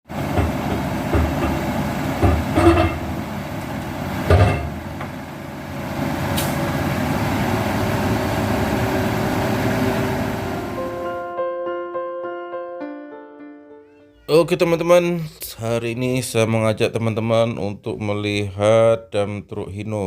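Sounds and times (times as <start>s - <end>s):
diesel truck engine running: 0.1s - 11.2s
loud knocks: 0.2s - 3.2s, 4.3s - 5.2s.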